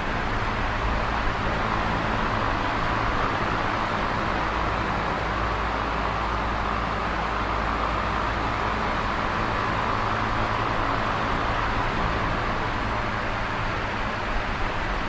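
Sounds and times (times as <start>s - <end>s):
fan air whooshing: 0.0s - 15.0s.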